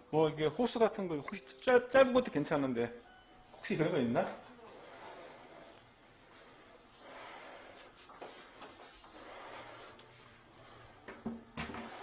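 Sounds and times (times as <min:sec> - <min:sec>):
faint shuffling and handling: 0:03.5 - 0:11.2.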